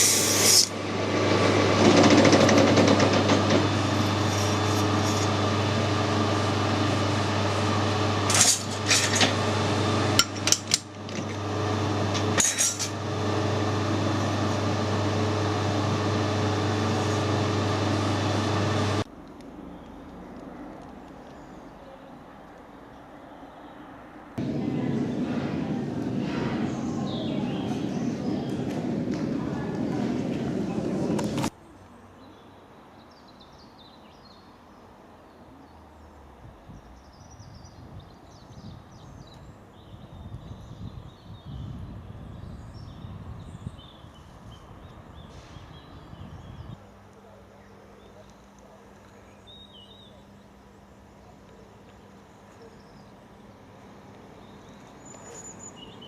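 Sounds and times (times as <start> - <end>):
electric motor humming: 0.0 - 19.0
low outdoor rumble: 0.7 - 32.0
small birds chirping: 26.7 - 28.7, 36.8 - 56.0.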